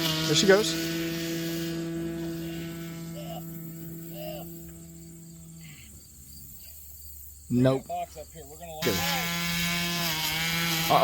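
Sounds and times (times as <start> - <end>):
model airplane engine droning: 0.0 - 6.9, 8.2 - 11.0.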